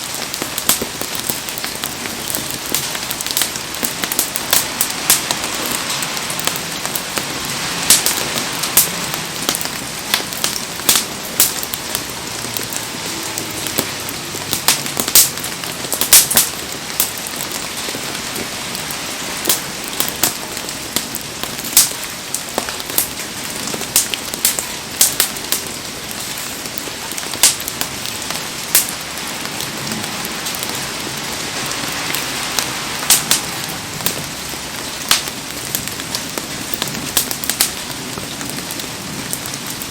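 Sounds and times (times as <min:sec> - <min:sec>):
bonfire crackling and popping: 0:00.0 - 0:39.9
heavy rain: 0:00.0 - 0:39.9.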